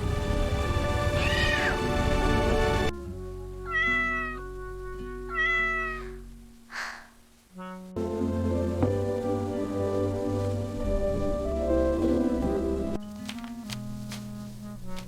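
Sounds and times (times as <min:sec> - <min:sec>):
soft background music: 0:00.0 - 0:06.7, 0:07.5 - 0:15.0
cat meowing: 0:01.2 - 0:01.8, 0:03.7 - 0:04.4, 0:05.2 - 0:06.2.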